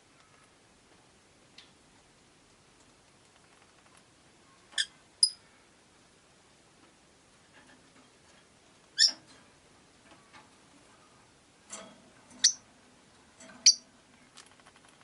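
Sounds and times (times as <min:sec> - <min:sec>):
lovebirds chirping: 0:12.4 - 0:12.7.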